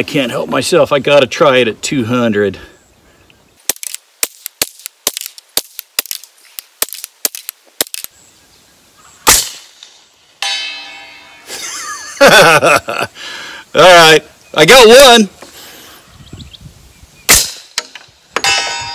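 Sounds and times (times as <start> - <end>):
rifle scope turret clicks: 3.7 - 8.1
suppressed gunshot: 9.2 - 9.9, 17.3 - 17.9
distant steel target ringing: 9.3 - 11.5, 18.4 - 18.9.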